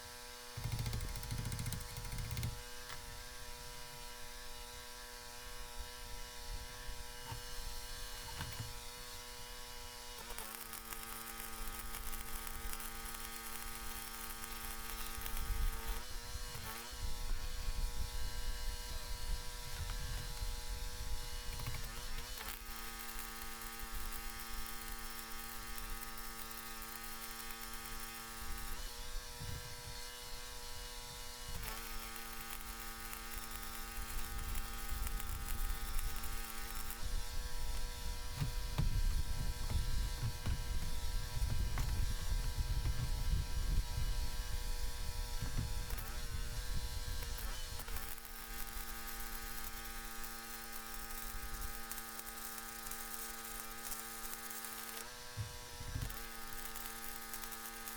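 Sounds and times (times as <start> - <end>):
welding machine humming: 0.5 - 57.9
welding arc crackling: 10.2 - 16.9, 21.4 - 28.9, 31.6 - 37.9, 45.7 - 55.1, 55.9 - 57.9.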